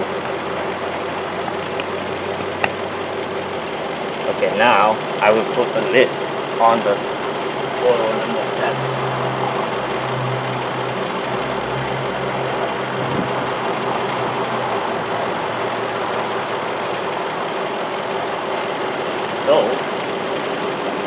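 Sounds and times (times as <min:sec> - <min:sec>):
car engine idling while misfiring: 0:00.0 - 0:21.0.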